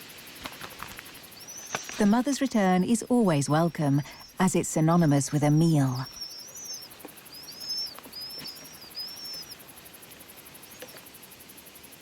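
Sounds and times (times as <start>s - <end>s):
chicks begging calls: 1.3s - 9.8s.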